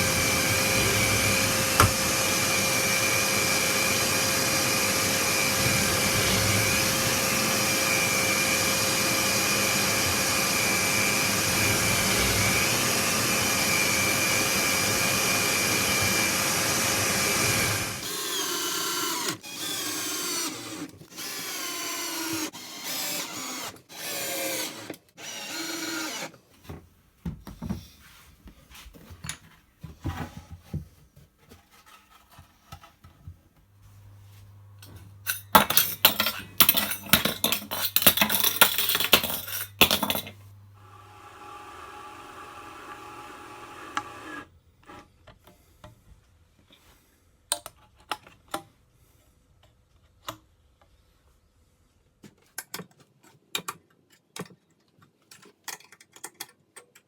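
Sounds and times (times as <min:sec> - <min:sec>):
power tool cutting wood: 0:00.0 - 0:26.4, 0:40.8 - 0:44.5
wood and tools knocking: 0:00.3 - 0:02.2.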